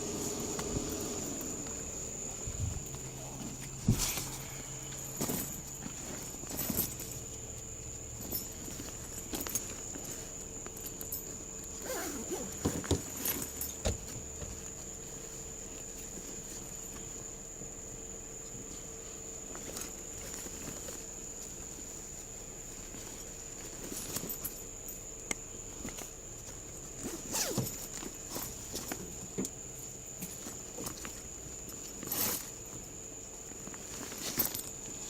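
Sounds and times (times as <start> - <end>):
faint high whine and hum: 0.0 - 35.0
rustling and clicking handling noise: 0.2 - 35.0.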